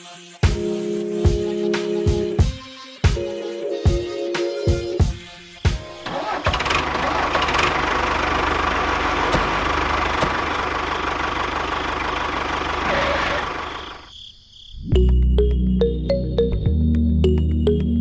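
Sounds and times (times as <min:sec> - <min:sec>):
tractor engine running: 0:05.7 - 0:14.1.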